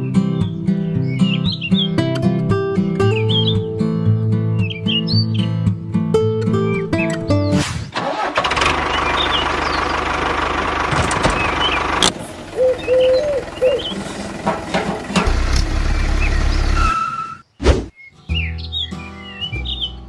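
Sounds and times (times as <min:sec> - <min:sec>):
bird-like chirps: 0:00.0 - 0:02.0, 0:04.6 - 0:05.6, 0:11.3 - 0:14.4, 0:15.9 - 0:20.0
small engine running: 0:08.0 - 0:16.9.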